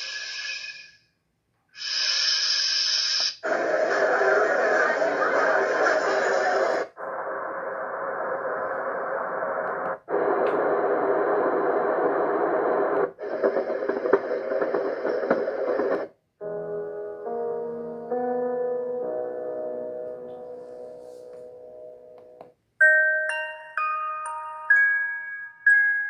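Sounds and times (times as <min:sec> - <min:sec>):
white-noise machine hiss: 0:00.0 - 0:01.0, 0:01.8 - 0:16.6
scattered crackles: 0:03.2 - 0:16.2.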